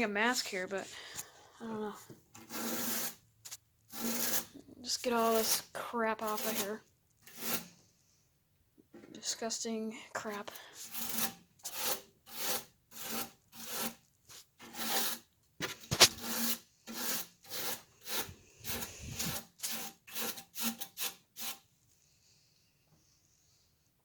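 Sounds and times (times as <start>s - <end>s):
brush scrubbing a metal coil: 2.4s - 7.8s, 10.3s - 21.6s.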